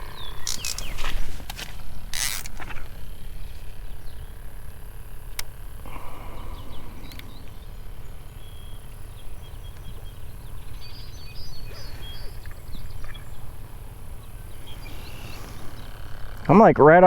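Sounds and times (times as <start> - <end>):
small birds chirping: 0.0 - 17.0
steady low rumble: 0.0 - 17.0
short rustle: 0.4 - 3.8.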